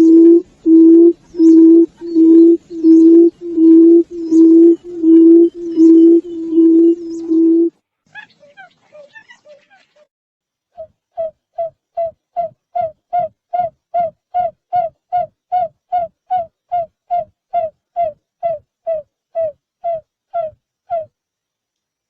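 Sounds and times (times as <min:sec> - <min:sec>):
bird giving short hooting notes: 0:00.0 - 0:07.7.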